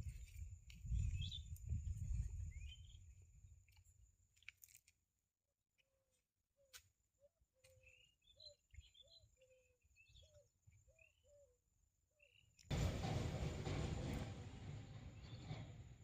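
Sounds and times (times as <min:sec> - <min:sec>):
low repeated bird calls: 0:05.8 - 0:12.7.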